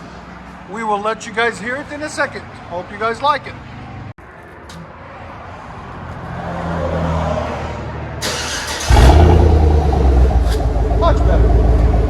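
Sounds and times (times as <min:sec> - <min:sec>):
car exhaust rumbling: 0:08.8 - 0:12.0.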